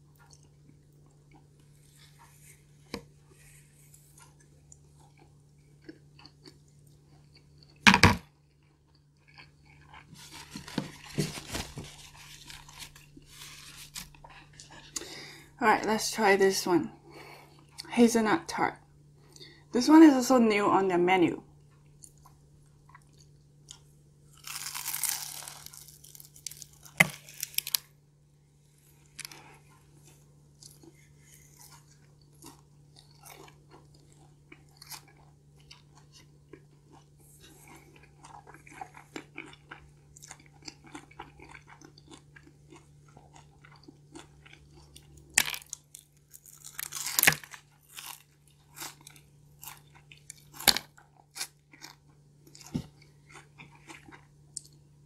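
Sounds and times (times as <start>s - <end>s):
slow chewing: 0.0s - 15.6s, 21.6s - 27.9s, 28.6s - 55.0s
crunchy pastry bites: 22.9s - 28.0s, 28.9s - 54.8s.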